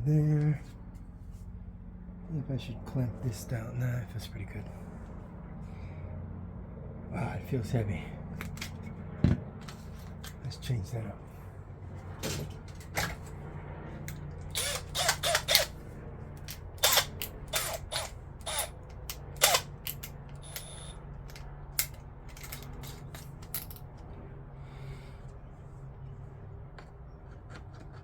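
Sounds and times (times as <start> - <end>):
steady low hum: 0.0 - 28.0
metallic tool clicks: 14.1 - 15.7, 16.4 - 23.8.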